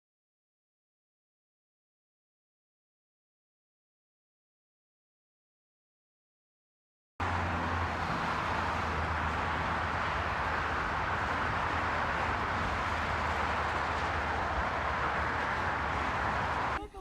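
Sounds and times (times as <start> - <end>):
broad rushing noise: 7.2 - 16.8
engine hum: 7.2 - 17.0.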